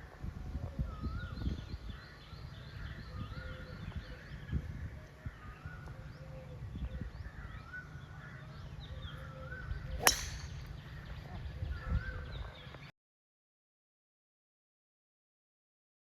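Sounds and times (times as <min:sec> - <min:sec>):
wild birds chirping: 0:05.3 - 0:12.9
sharp crack: 0:10.0 - 0:10.7.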